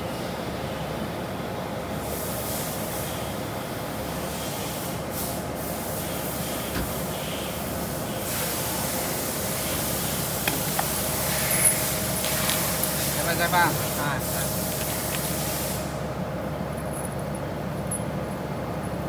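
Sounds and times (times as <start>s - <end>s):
machine hissing: 6.7s - 16.0s.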